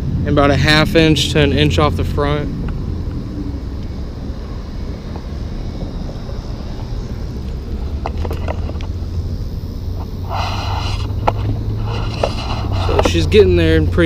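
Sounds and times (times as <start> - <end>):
steady low hum: 0.0 - 14.0
wind rumble on microphone: 0.0 - 14.0
brief hiss: 10.2 - 11.2.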